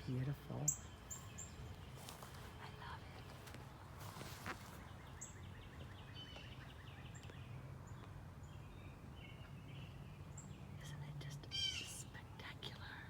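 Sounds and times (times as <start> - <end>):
bird chirping trill: 0.0 - 2.0.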